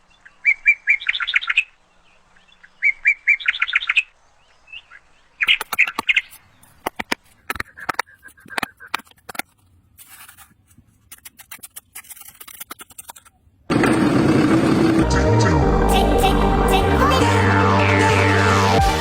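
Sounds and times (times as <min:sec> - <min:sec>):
clicks and scrapes of handwork: 0:05.6 - 0:13.4
loud music: 0:14.4 - 0:19.0.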